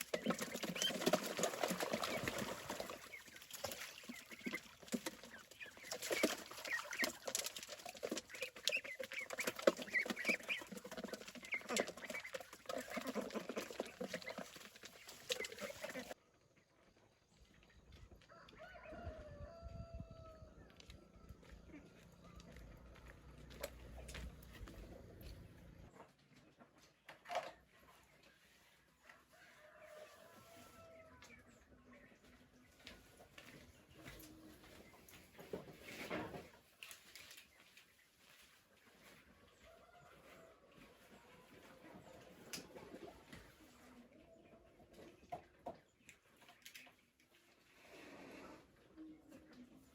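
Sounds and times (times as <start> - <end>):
chickens clucking: 0.0 - 16.2, 37.5 - 47.0.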